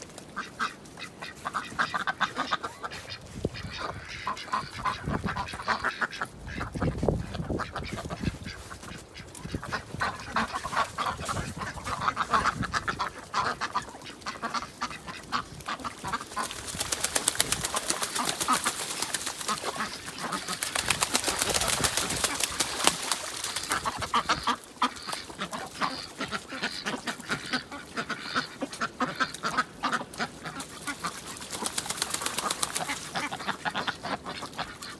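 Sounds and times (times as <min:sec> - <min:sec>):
ducks quacking: 0:00.0 - 0:34.9
rapid crackling noise: 0:16.3 - 0:24.4.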